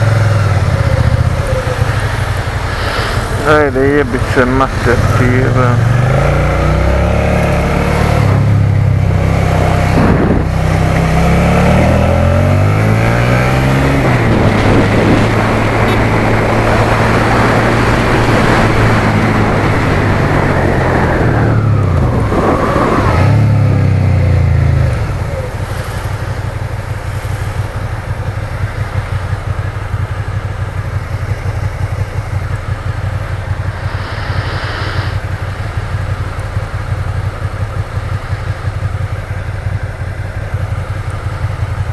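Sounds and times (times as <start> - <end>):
motorcycle engine shifting gears: 4.2 - 41.9
wind noise: 8.2 - 11.5, 12.6 - 23.9, 33.5 - 36.3.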